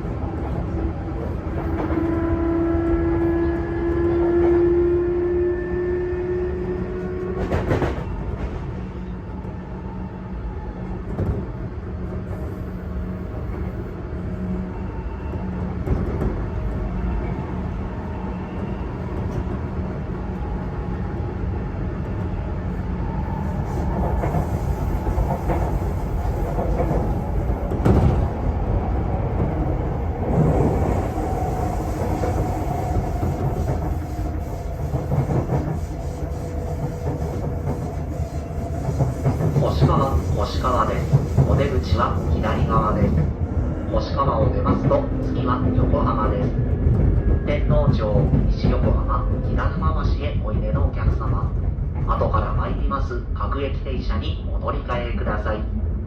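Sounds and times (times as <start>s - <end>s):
train rolling rumble: 0.0s - 56.0s.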